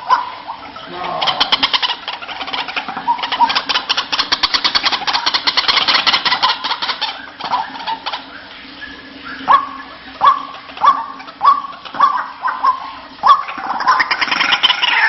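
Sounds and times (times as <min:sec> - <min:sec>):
waterhen calling harsh notes: 0:00.0 - 0:15.0.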